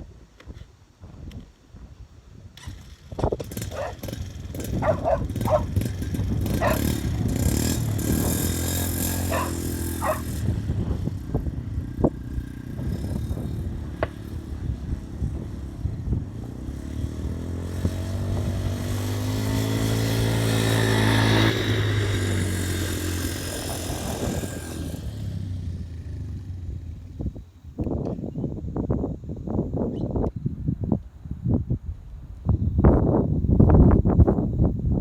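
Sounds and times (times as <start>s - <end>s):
quad bike engine passing: 2.6s - 27.5s.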